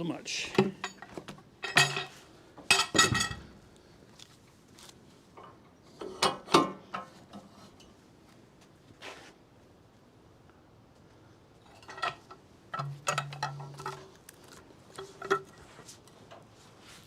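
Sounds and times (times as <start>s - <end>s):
metallic clanks and rattles: 0.5s - 3.6s, 11.6s - 14.2s, 14.9s - 16.5s.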